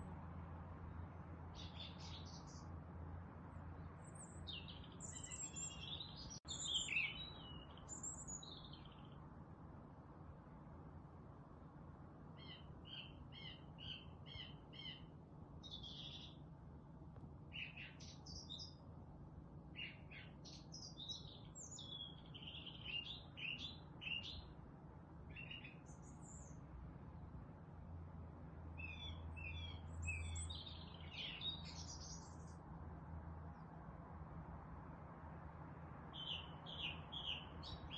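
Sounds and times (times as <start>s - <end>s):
songbirds singing: 0.0s - 9.4s, 12.2s - 26.8s, 28.6s - 32.8s, 36.0s - 37.9s.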